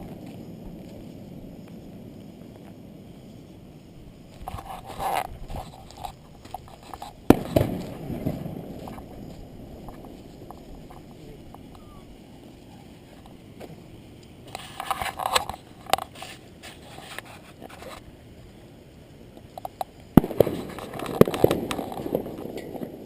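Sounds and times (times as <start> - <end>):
fireworks crackling: 0.0 - 23.0
firework bang: 7.2 - 11.4, 20.2 - 23.0.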